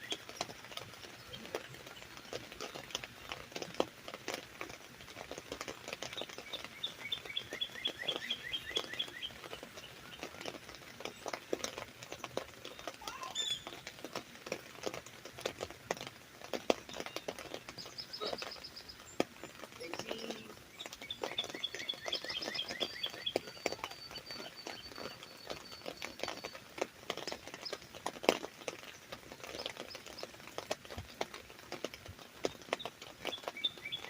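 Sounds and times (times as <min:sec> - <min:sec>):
rain pattering on umbrella: 0:00.0 - 0:34.0
bird singing: 0:06.1 - 0:11.4, 0:16.9 - 0:26.6, 0:32.5 - 0:34.0.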